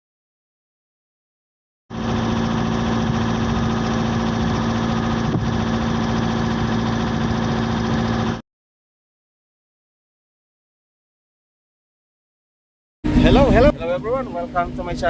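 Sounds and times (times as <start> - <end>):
diesel engine misfiring: 1.9 - 8.4.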